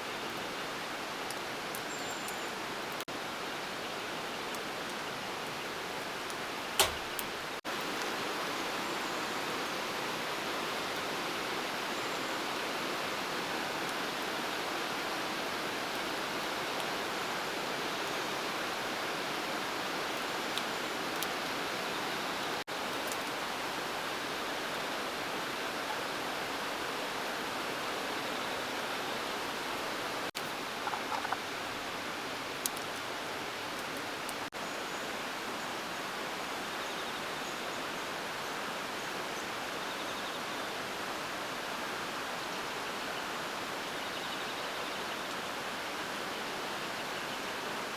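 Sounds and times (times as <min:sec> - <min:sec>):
sharp click: 0:06.8 - 0:07.3
flowing water rushing: 0:28.7 - 0:34.3.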